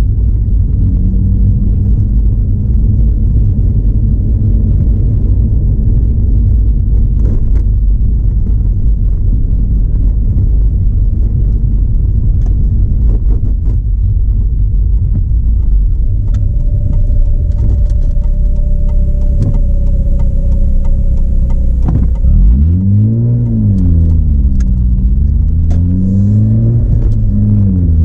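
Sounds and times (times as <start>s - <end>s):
car engine and road noise: 0.0s - 28.0s
steady hum: 13.8s - 28.0s.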